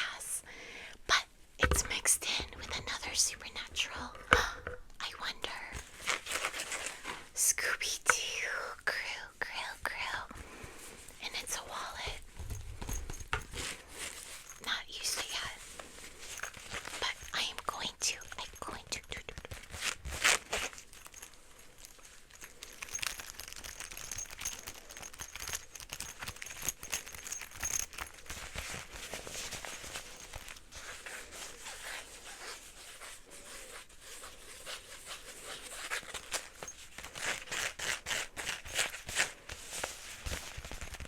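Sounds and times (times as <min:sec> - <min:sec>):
fingers scratching fabric wallet: 0:22.6 - 0:41.0.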